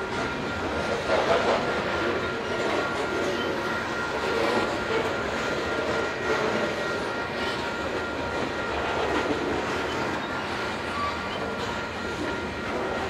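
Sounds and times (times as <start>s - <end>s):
thin steady high tone: 0.0s - 13.0s.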